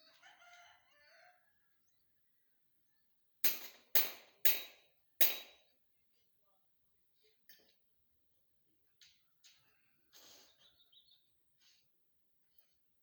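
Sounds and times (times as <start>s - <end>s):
faint rooster crowing: 0.0s - 2.1s, 9.3s - 10.2s.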